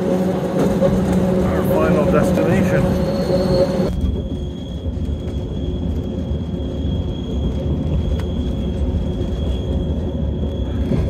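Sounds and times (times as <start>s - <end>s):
railcar rumbling on track: 0.0s - 11.0s
thin high whine: 1.3s - 5.6s.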